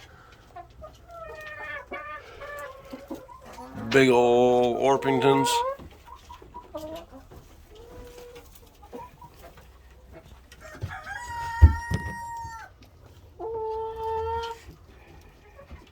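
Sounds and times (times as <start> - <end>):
hen clucks: 0.1 - 10.3
rooster crowing: 10.7 - 12.6.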